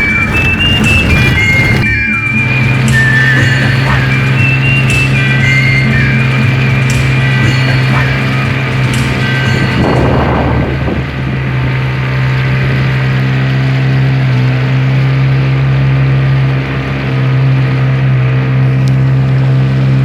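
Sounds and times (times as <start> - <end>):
brief rush of noise: 0.0 - 4.0
engine running steadily: 0.0 - 20.0.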